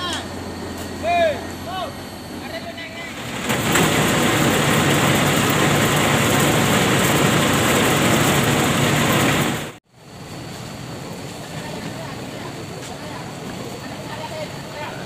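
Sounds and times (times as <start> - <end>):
heavy diesel engine running: 0.0 - 9.8.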